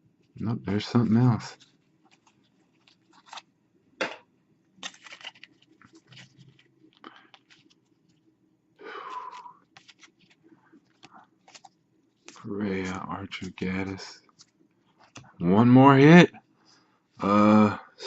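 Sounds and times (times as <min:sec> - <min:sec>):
card scraping: 0:00.7 - 0:03.5, 0:04.8 - 0:08.2, 0:08.9 - 0:15.2
trading cards flipped by hand: 0:01.6 - 0:03.5, 0:04.8 - 0:08.2, 0:09.0 - 0:13.6.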